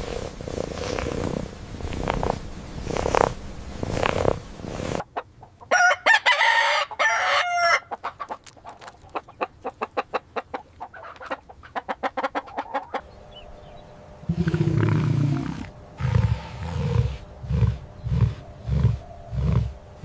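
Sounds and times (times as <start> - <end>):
rooster clucking rapidly: 4.9 - 13.1
rooster crowing: 5.7 - 8.0.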